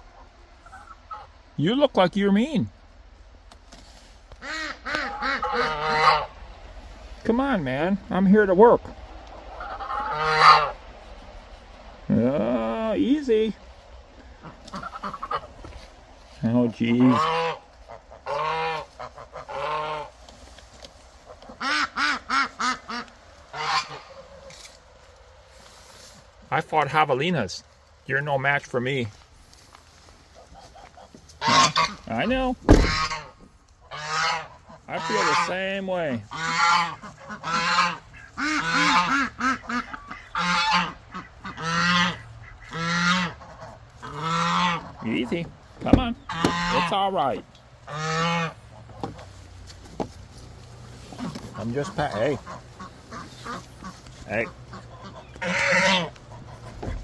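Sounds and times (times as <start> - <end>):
goose honking: 0.0 - 2.6, 4.3 - 11.4, 12.0 - 20.2, 21.2 - 24.7, 30.3 - 49.6, 50.5 - 57.0.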